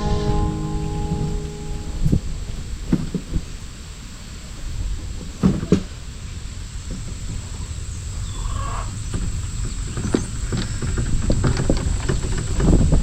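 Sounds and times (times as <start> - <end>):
low rumble: 0.0 - 3.3.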